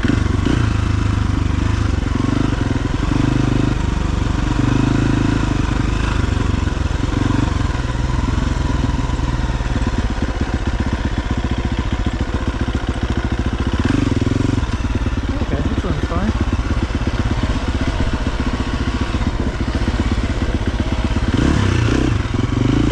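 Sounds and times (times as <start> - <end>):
dirt bike engine revving: 0.0 - 22.9.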